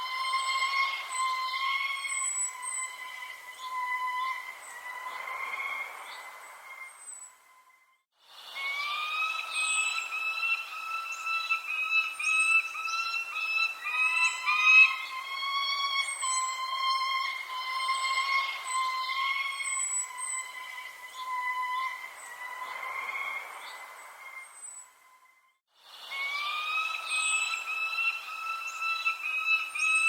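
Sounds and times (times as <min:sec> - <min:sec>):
birds calling: 0:00.0 - 0:07.4, 0:08.6 - 0:24.9, 0:26.1 - 0:30.0
high bird chirps: 0:08.8 - 0:22.8.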